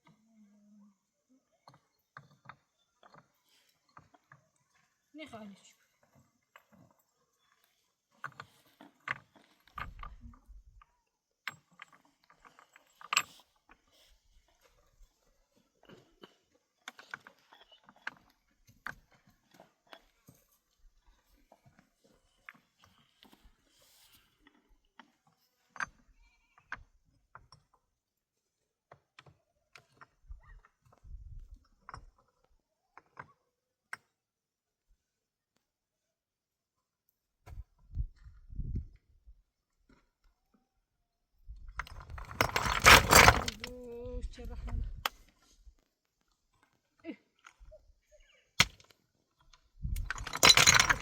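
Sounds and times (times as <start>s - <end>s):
hard objects knocking and clattering: 41.8s - 43.7s, 49.9s - 51.0s.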